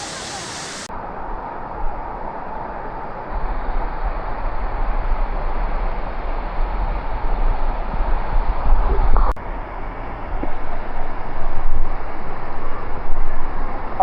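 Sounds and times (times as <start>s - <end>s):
waterfall rushing: 0.0s - 0.9s.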